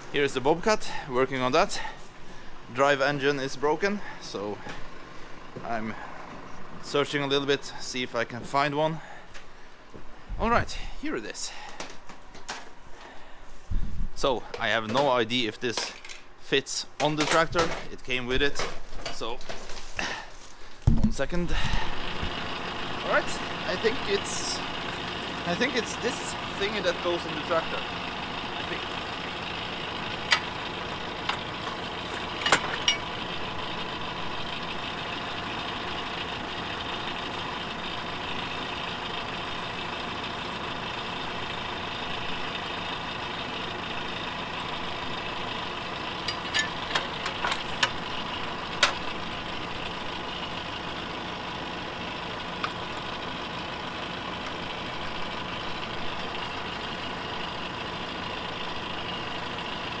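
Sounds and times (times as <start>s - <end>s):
small tractor engine idling: 0.0s - 13.6s, 19.0s - 60.0s
metal hitch knocks: 30.2s - 33.2s, 46.2s - 48.0s.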